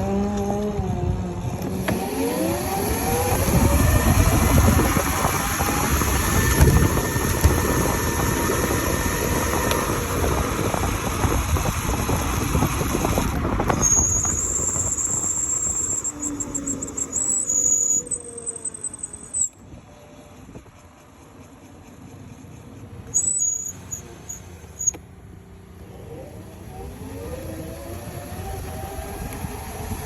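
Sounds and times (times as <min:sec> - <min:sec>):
mini motorbike motor: 0:00.0 - 0:25.0, 0:25.7 - 0:30.0
wind and road rumble: 0:00.0 - 0:30.0
high steady whine: 0:01.4 - 0:25.0.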